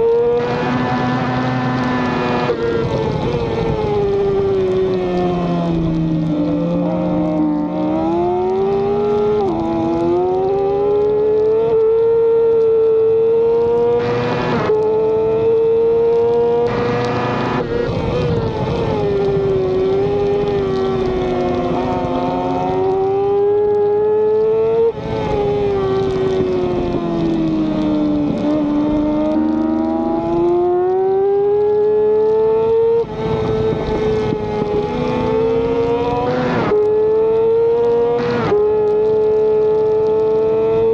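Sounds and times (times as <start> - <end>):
racing motorcycle engine revving: 0.0 - 40.9.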